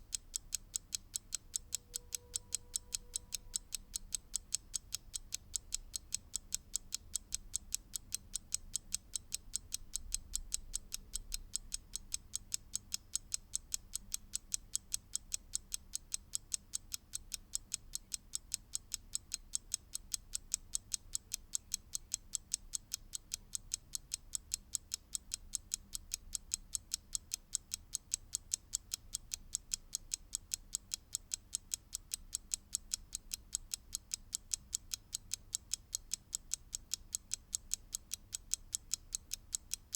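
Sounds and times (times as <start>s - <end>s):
mechanical clock ticking: 0.0s - 39.9s.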